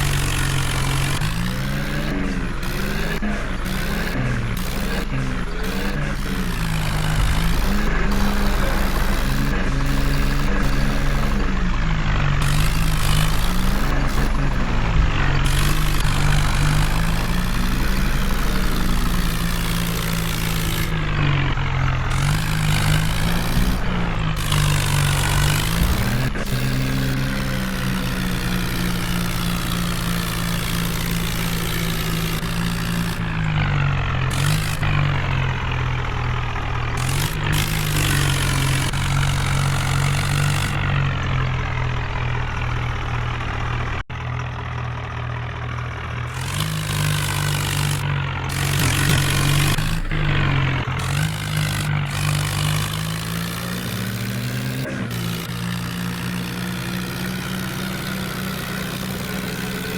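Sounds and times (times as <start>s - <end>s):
diesel engine revving: 0.0s - 59.9s.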